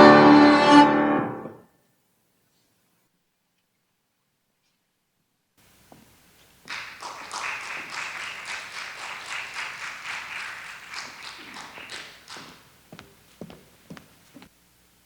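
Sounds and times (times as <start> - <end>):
small group clapping: 6.6 - 12.7.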